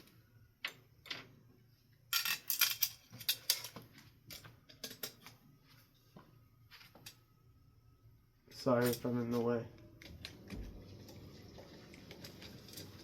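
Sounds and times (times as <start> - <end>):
metal hardware clinking and rattling: 2.1 - 5.4.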